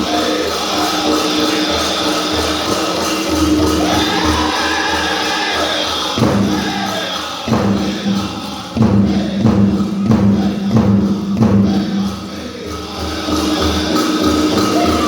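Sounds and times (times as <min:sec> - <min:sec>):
drum group singing: 0:00.0 - 0:15.0
steady drumbeat: 0:00.0 - 0:15.0.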